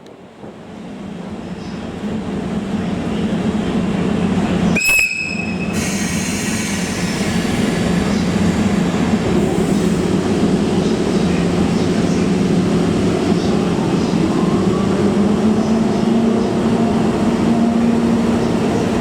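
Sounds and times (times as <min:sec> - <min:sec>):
train rumbling: 0:00.0 - 0:19.0
high train whistle blast: 0:04.8 - 0:07.1.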